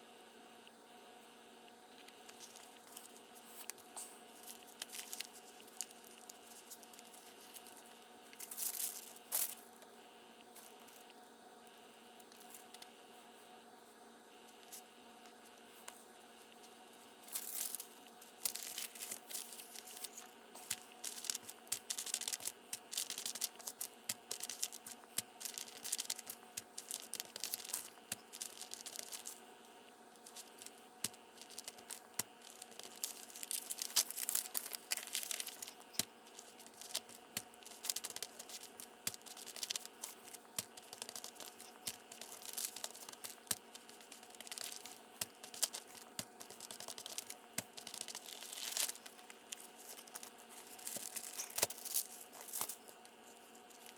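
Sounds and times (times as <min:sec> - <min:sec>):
faint steady hum: 0:00.0 - 0:53.9
paper rustling and scraping: 0:02.3 - 0:07.8, 0:08.4 - 0:09.6, 0:17.3 - 0:29.4, 0:30.2 - 0:52.9.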